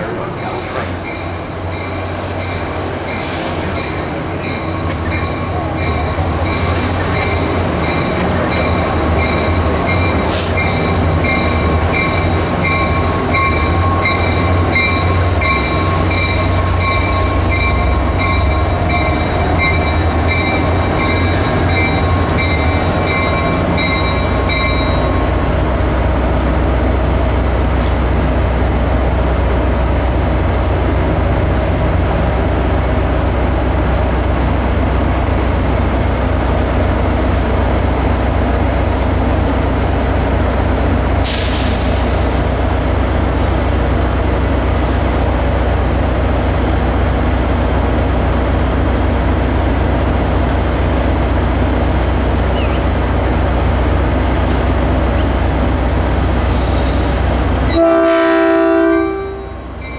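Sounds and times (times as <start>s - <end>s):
diesel locomotive engine rumble: 0.0s - 59.9s
locomotive bell ringing: 1.0s - 27.2s, 58.6s - 59.9s.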